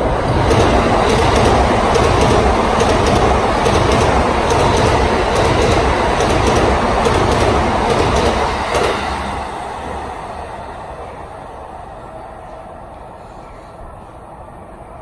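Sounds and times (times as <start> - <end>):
wheels clacking over rail joints: 0.0 - 9.9
electric train rumbling: 0.0 - 15.0.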